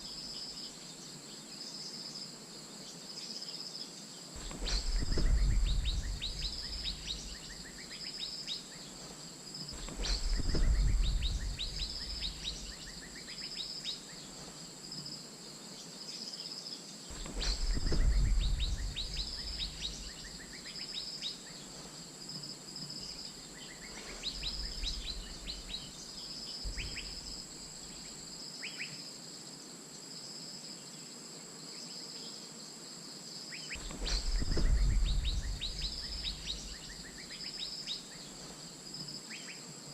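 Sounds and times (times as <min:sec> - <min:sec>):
high insect drone: 0:00.0 - 0:39.9
deep low rumbles: 0:04.4 - 0:07.6, 0:09.8 - 0:12.8, 0:17.1 - 0:20.4, 0:26.7 - 0:27.5, 0:33.8 - 0:37.1
sharp falling whistled bird calls: 0:04.4 - 0:09.0, 0:09.6 - 0:14.3, 0:17.1 - 0:21.8, 0:23.0 - 0:29.0, 0:33.5 - 0:38.6.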